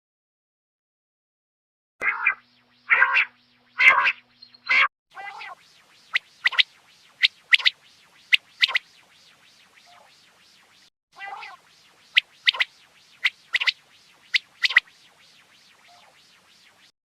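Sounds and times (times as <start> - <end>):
quail calling: 2.0 - 8.9, 9.8 - 10.1, 11.2 - 14.9, 15.8 - 16.2.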